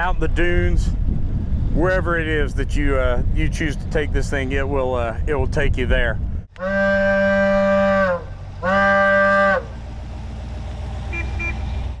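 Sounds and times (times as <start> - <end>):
engine idling rumble: 6.2 - 12.0
vehicle horn blasts: 6.6 - 9.8, 11.1 - 11.7.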